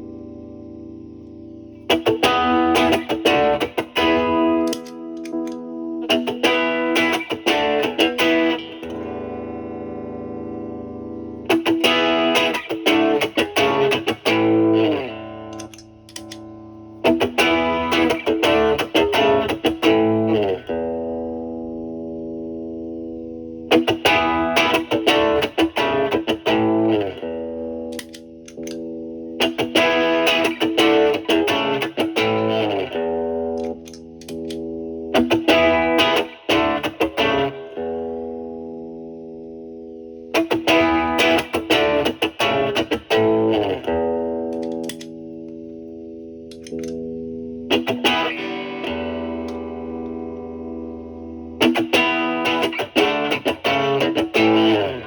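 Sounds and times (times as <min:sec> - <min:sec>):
overdriven electric guitar chords: 0:00.0 - 0:55.0.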